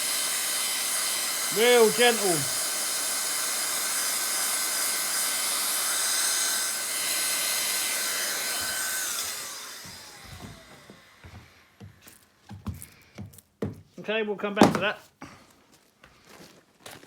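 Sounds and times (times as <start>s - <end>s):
hot-air blower hiss and whine: 5.3s - 11.7s.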